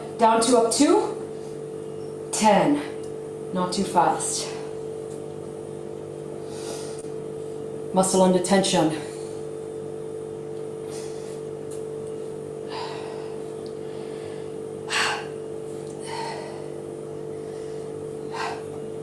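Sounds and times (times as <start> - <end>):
steady low hum: 0.0 - 19.0
woman breathing hard: 6.4 - 7.1, 12.6 - 18.9.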